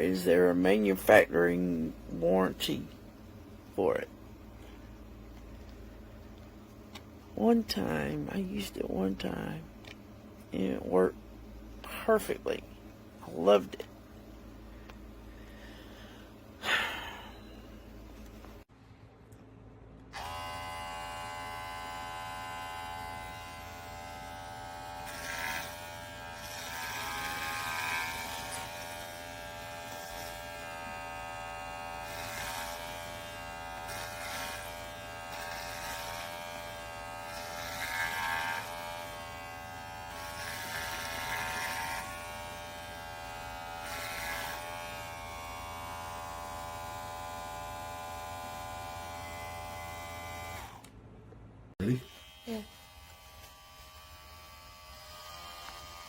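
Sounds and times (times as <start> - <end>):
electric clipper buzzing: 20.1 - 50.9, 52.0 - 56.0.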